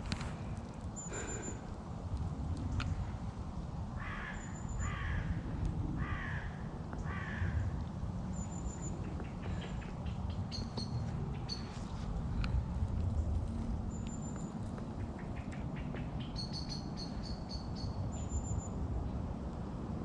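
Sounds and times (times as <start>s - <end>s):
steady low rumble: 0.0s - 20.0s
crow cawing: 4.0s - 5.4s, 6.0s - 7.7s
small birds chirping: 8.3s - 12.5s, 13.9s - 18.7s.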